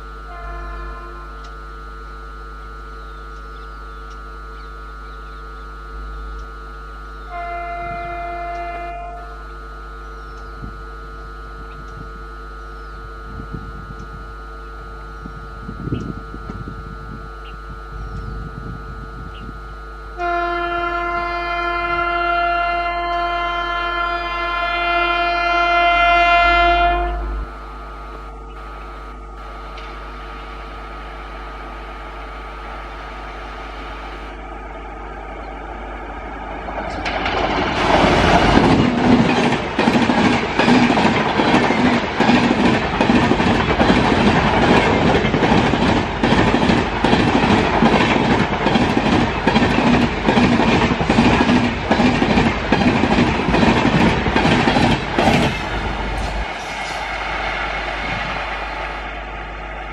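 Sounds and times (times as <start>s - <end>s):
train horn blast: 0.0s - 34.4s
train rumble: 0.0s - 59.9s
wheels clacking over rail joints: 36.4s - 56.6s.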